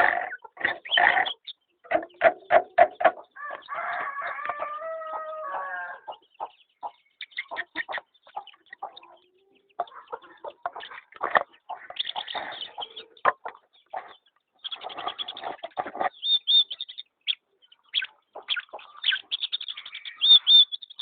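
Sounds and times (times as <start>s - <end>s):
chicken clucks and clicks: 0.0s - 21.0s
rooster crowing: 3.4s - 6.1s.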